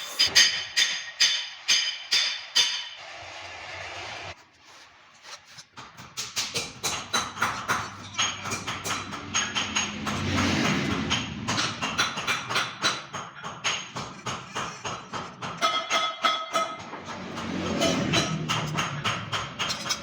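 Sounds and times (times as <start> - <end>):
hammer striking metal: 0.0 - 3.0, 6.1 - 20.0.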